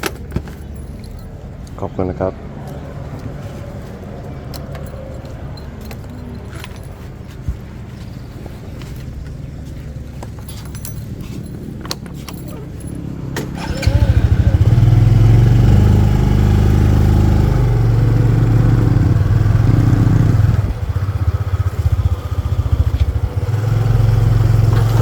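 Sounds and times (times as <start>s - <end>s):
motorcycle engine running: 13.6s - 25.0s.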